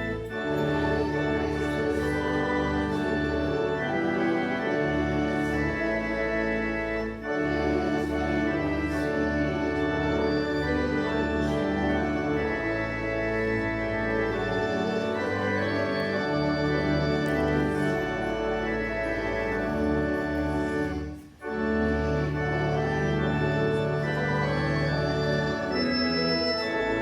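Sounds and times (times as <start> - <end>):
church organ chords: 0.0 - 27.0.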